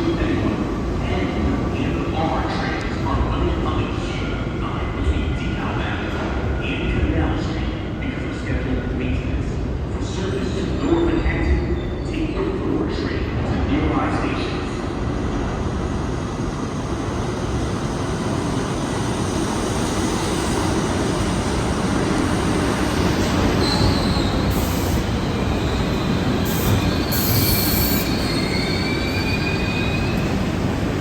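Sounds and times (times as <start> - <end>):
subway train rumbling: 0.0 - 31.0
high-pitched wheel squeal: 26.5 - 30.2.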